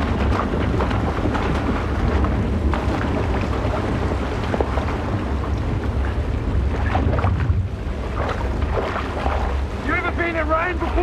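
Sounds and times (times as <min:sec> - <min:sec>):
heavy rain pouring: 0:00.0 - 0:11.0
steady low rumble: 0:00.0 - 0:11.0.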